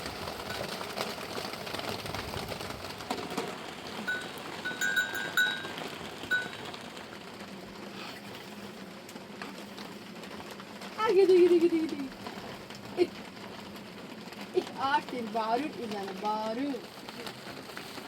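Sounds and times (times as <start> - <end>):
rain hiss: 0.0 - 18.0
rushing water: 0.0 - 18.0
ringing clinks: 4.1 - 6.7.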